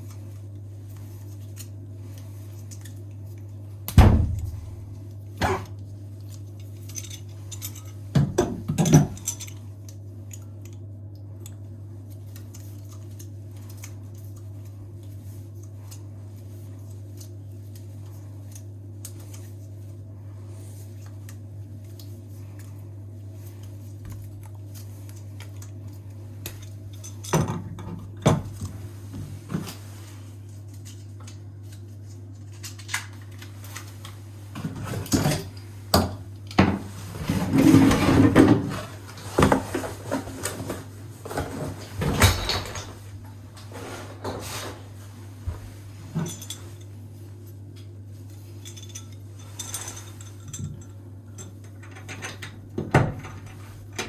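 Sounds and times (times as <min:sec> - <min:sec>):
metal tools clinking and rattling: 0:06.7 - 0:08.0, 0:08.7 - 0:09.6, 0:46.1 - 0:46.9, 0:48.6 - 0:52.5.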